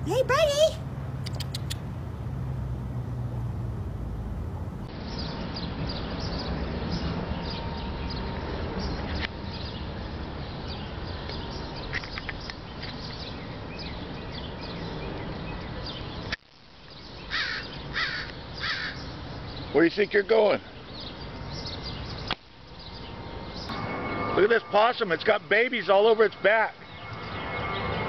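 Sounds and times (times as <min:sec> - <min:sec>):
harsh bird calls: 0:17.2 - 0:19.9.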